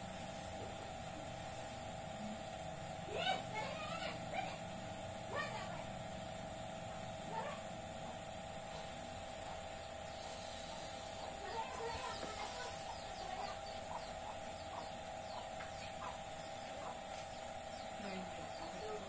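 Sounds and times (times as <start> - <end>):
steady hum: 0.0 - 19.0
birds chirping: 8.8 - 19.0.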